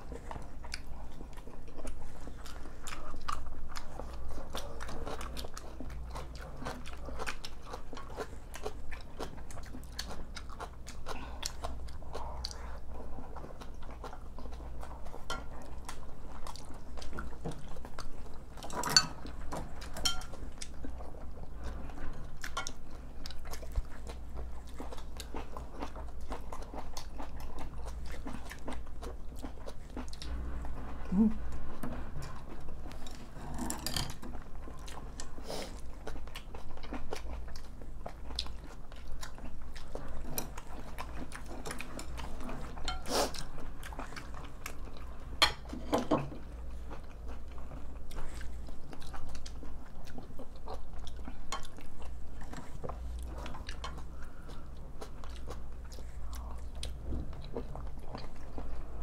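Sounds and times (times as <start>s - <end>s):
people chewing and swallowing: 0.0s - 59.0s.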